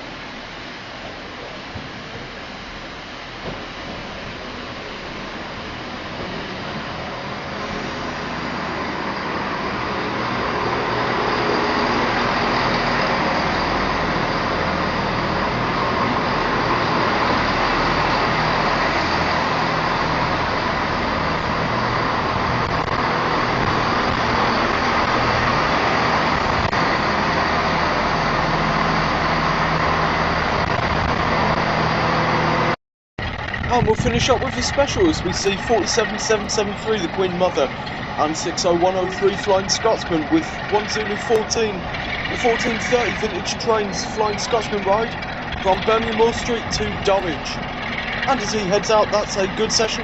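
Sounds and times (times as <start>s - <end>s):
diesel train engines throbbing: 0.0s - 50.0s.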